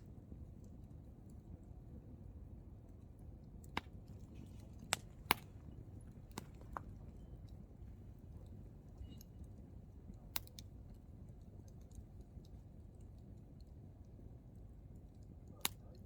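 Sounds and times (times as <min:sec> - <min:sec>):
low rumble of fire: 0:00.0 - 0:16.0
campfire logs crackling and popping: 0:03.0 - 0:13.7.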